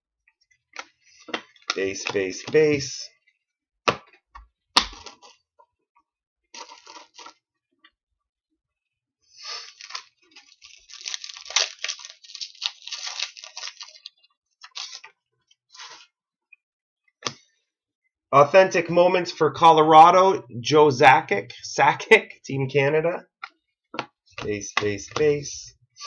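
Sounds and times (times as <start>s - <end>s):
foil wrapper crinkling and tearing: 6.6s - 7.4s, 9.4s - 15.1s.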